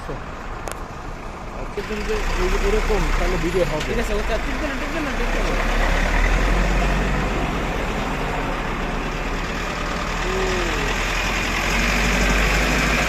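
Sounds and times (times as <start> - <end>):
road traffic noise: 0.0 - 13.0
truck engine running: 0.0 - 13.0.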